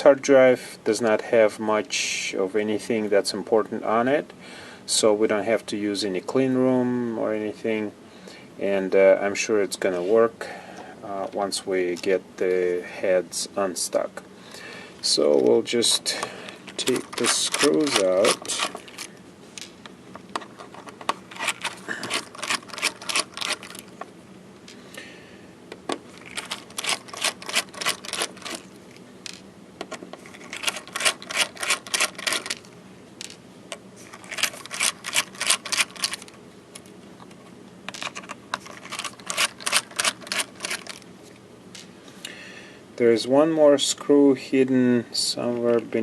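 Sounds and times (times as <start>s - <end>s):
screwdriver rapid clicking: 30.4s - 32.6s, 38.8s - 41.0s.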